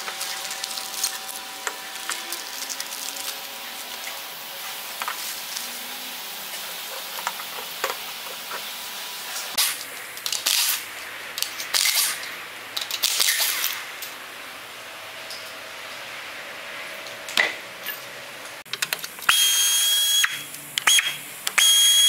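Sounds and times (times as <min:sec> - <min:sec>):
plastic packaging rustling: 0:00.0 - 0:05.9.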